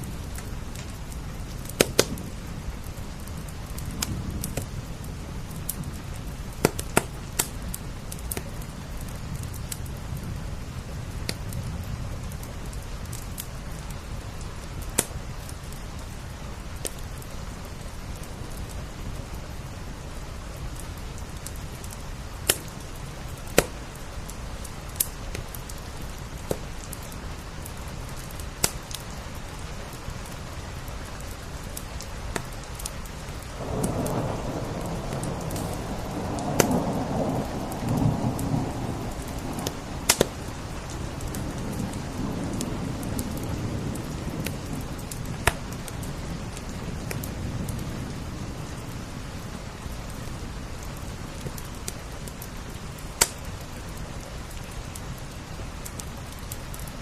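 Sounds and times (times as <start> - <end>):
crackling wood fire: 0.0 - 57.0
steady rain: 0.0 - 57.0
thunder rumbling: 33.4 - 51.8.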